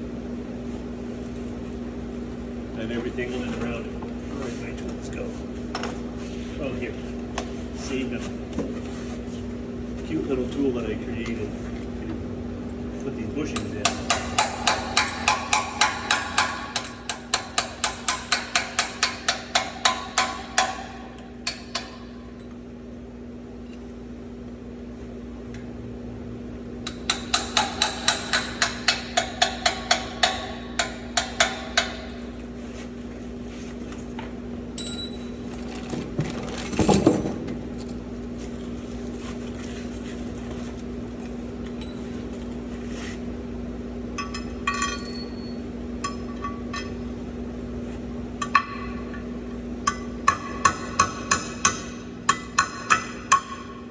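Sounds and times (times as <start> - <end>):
steady hum: 0.0 - 53.9
hammer striking metal: 13.6 - 22.1, 26.9 - 32.2, 49.8 - 53.9.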